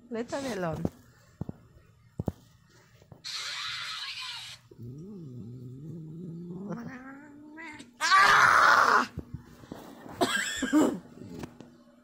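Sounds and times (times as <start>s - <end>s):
cat hissing screech: 3.2s - 4.6s
cat growling yowl: 3.2s - 9.1s.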